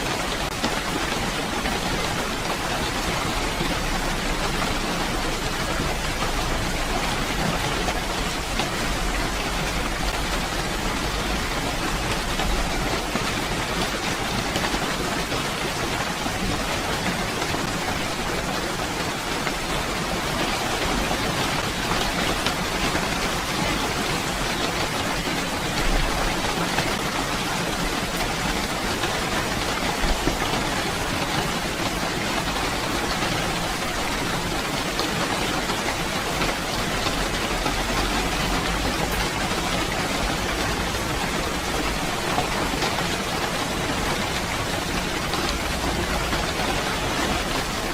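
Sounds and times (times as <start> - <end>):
heavy rainfall: 0.0 - 47.9.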